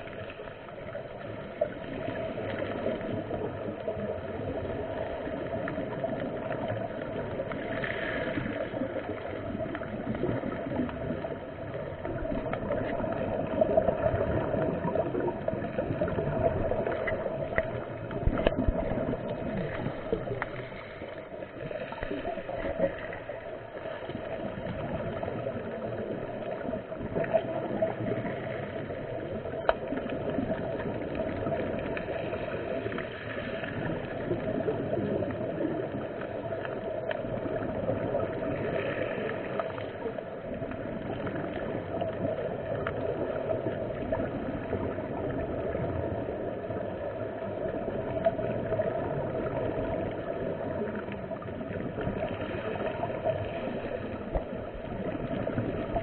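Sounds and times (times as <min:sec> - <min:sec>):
muffled water noise: 0:00.0 - 0:56.0
faint clicks: 0:05.5 - 0:24.9, 0:26.4 - 0:34.2.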